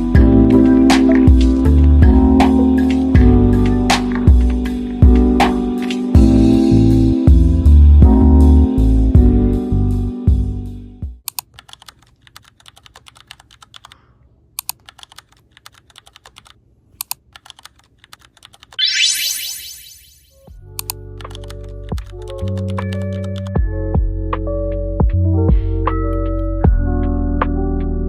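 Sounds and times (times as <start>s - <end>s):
background music: 0.0s - 11.2s, 18.8s - 28.0s
typing on computer keyboard: 11.2s - 14.0s, 14.6s - 18.8s, 20.8s - 23.6s
rising sweep of tones: 18.8s - 20.3s.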